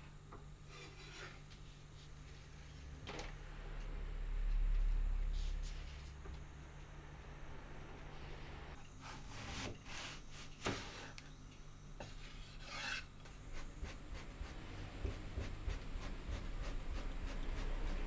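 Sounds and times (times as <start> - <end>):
rasping rubbing strokes: 12.4 - 18.0.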